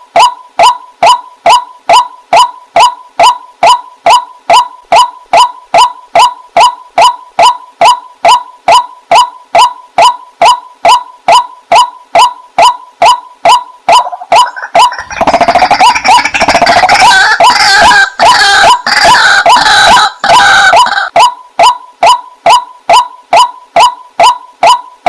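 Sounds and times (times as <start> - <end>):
waterhen calling: 13.1 - 24.9.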